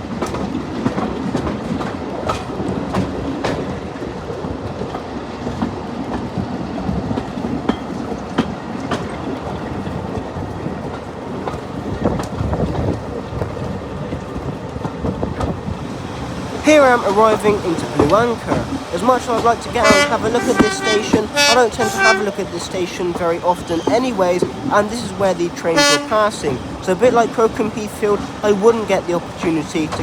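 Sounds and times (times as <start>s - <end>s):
train wheels rumbling on rail: 0.0s - 30.0s
track clicks and knocks: 16.6s - 26.7s.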